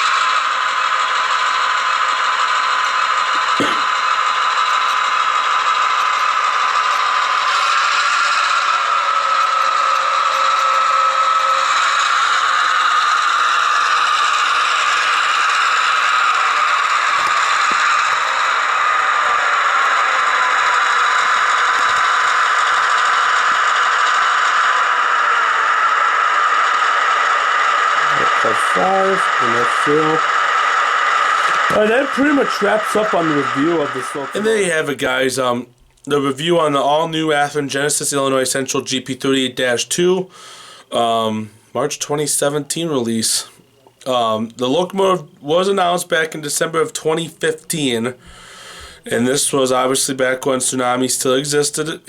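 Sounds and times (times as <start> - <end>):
model train rattling on track: 0.0 - 35.5
model locomotive diesel sound: 0.0 - 52.0.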